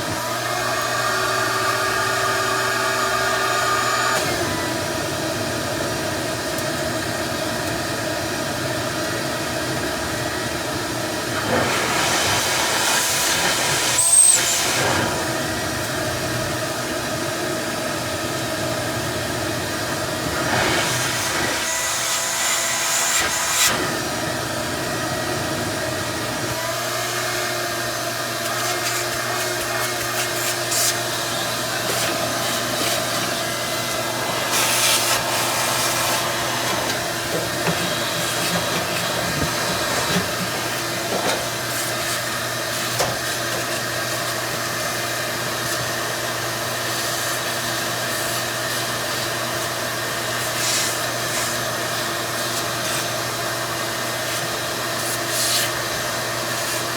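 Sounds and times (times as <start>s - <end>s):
rushing air: 11.3s - 15.8s, 30.4s - 41.1s
motor humming: 19.3s - 41.7s.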